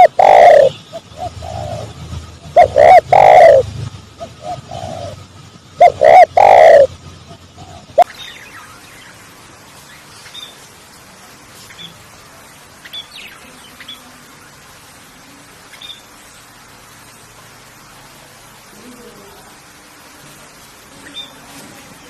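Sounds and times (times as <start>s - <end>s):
loud bird calls: 0.0s - 10.7s
steady background hiss: 0.0s - 22.0s
faint high bird chirps: 7.9s - 10.7s, 15.7s - 16.1s, 21.0s - 21.5s.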